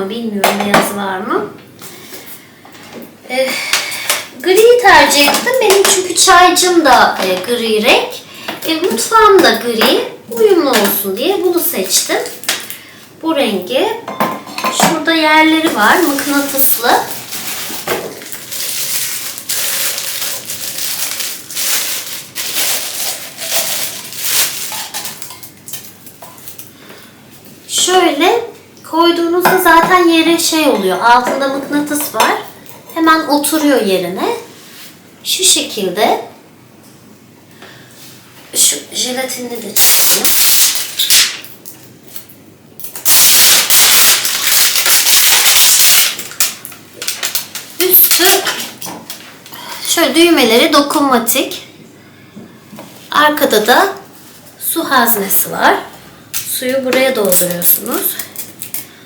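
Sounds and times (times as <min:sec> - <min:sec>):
plastic packaging crinkling: 0:11.2 - 0:12.8, 0:15.4 - 0:26.8, 0:39.8 - 0:49.4, 0:56.4 - 0:59.0.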